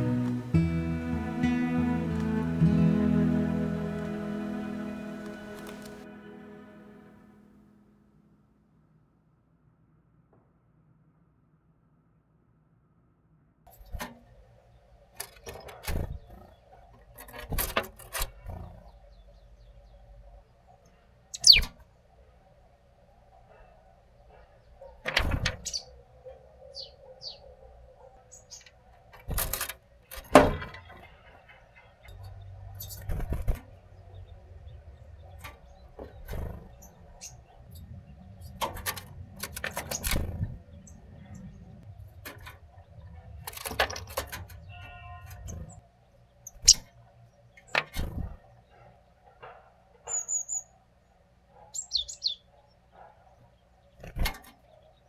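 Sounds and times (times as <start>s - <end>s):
birds tapping and clicking: 0.0s - 6.0s, 21.3s - 21.8s, 24.6s - 26.0s, 28.2s - 50.6s, 51.7s - 55.0s
birds chirping: 0.0s - 7.6s, 18.3s - 55.0s
faint steady hum: 0.0s - 8.2s.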